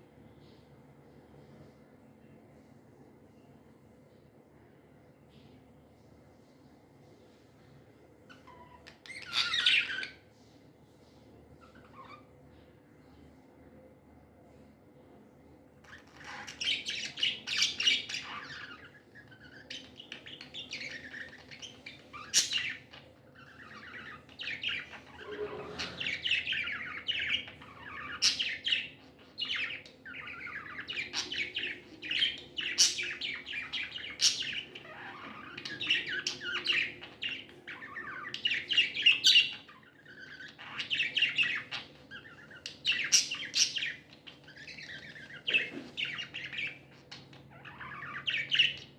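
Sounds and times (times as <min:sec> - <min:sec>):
budgies chirping and warbling: 0:08.3 - 0:10.2, 0:11.6 - 0:12.3, 0:15.8 - 0:48.9.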